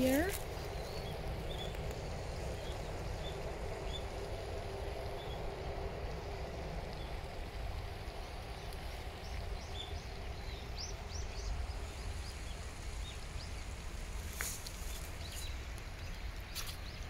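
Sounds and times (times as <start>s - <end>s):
small bird chirping: 0.0s - 4.2s
steady low rumble: 0.0s - 17.0s.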